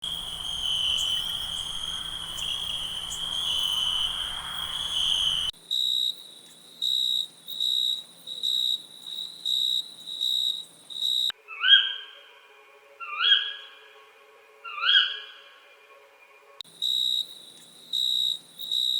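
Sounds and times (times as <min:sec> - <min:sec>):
high insect chirps: 0:00.0 - 0:11.3, 0:16.6 - 0:18.9
insects trilling: 0:00.0 - 0:11.3, 0:16.7 - 0:18.9.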